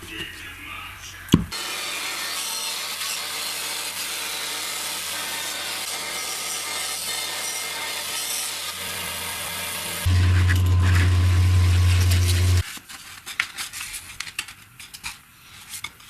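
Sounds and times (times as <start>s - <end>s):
wood being sawn: 1.6s - 12.6s
loud low hum: 10.0s - 12.6s.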